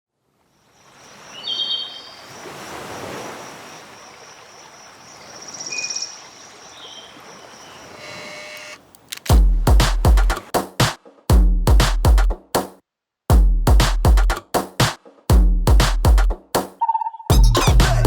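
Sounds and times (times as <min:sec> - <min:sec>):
birds calling: 0:05.2 - 0:09.2.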